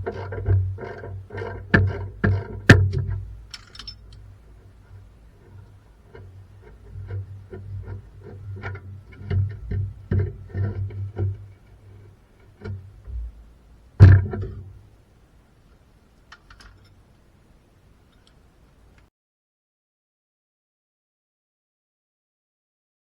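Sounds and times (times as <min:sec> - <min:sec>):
steady low hum: 0:00.0 - 0:19.1.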